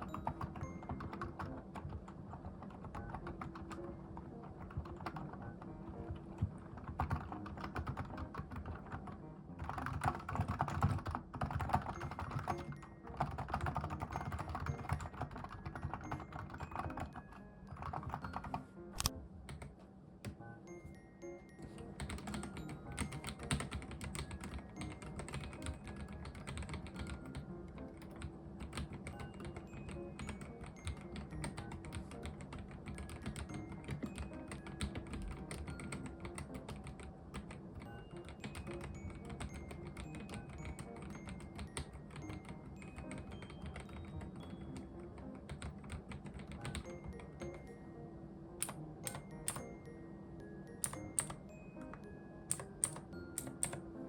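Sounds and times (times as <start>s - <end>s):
mechanical keyboard typing: 0.0s - 20.4s, 21.7s - 47.7s, 48.6s - 49.8s, 50.8s - 53.9s
soft background music: 0.0s - 54.0s.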